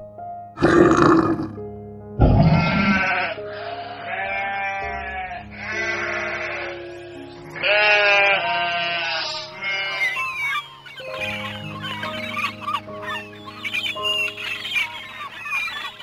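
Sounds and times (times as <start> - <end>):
background music: 0.0 - 16.0
goats bleating: 2.4 - 10.3.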